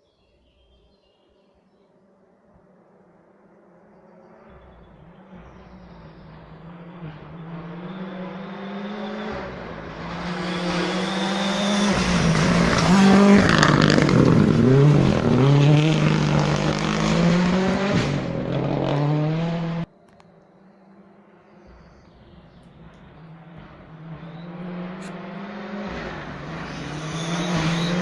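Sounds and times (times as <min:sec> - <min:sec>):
rally car engine revving past: 0:04.2 - 0:19.9, 0:21.6 - 0:28.0.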